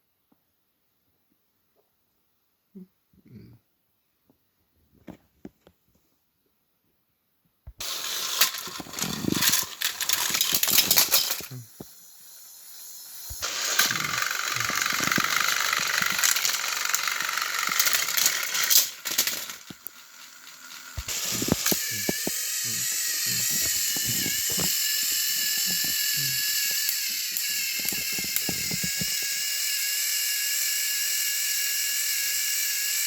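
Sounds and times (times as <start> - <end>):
toy train motors rattling: 7.8 - 33.0.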